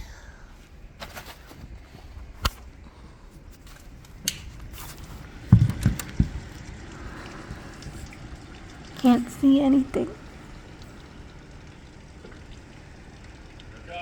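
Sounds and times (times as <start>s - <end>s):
dull thumps: 5.2s - 6.7s
clicks and knocks: 5.5s - 6.6s.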